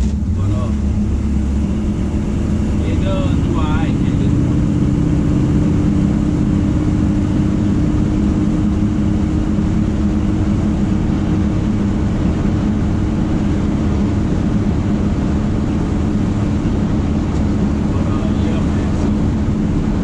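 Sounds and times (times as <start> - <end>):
pickup engine and exhaust droning: 0.0 - 20.0.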